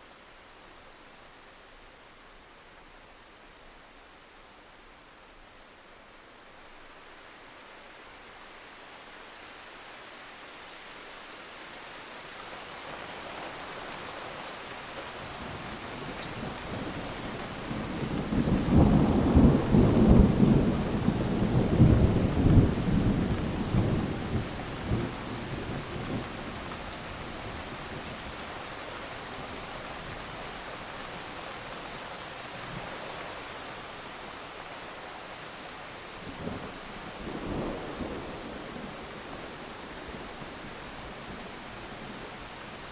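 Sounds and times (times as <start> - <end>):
steady rainfall: 0.0 - 42.9
rumble of thunder: 16.4 - 26.5.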